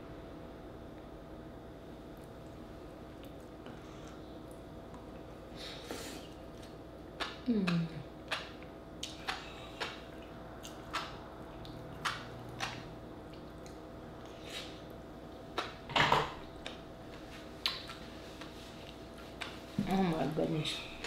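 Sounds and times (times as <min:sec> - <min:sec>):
wet chewing mouth sounds: 0:06.2 - 0:15.8.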